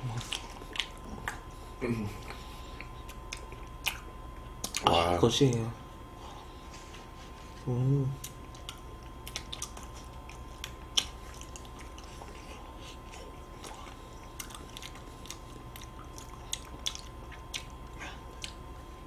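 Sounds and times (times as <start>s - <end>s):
wet chewing close up: 0.1s - 1.5s, 2.2s - 5.0s, 8.2s - 18.8s.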